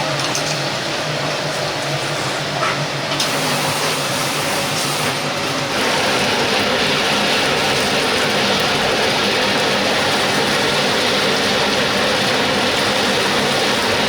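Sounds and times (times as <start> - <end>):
chicken sizzling in hot oil: 3.2 - 14.0.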